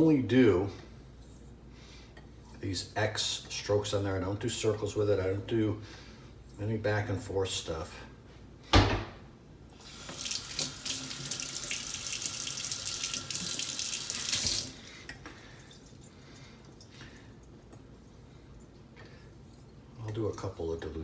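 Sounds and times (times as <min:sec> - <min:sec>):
sharp thump: 0:08.7 - 0:09.2
sink tap running: 0:09.8 - 0:14.9.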